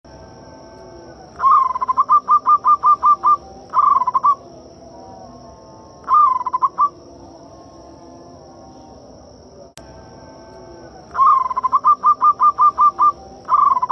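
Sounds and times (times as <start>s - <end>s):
dove cooing: 0.8s - 7.4s, 10.6s - 13.9s.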